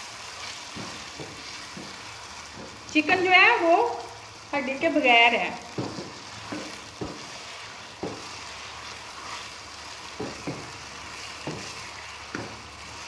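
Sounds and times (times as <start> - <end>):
chicken sizzling in a wok: 0.0 - 13.0
wooden spoon scraping and knocking: 0.6 - 2.8, 5.7 - 13.0.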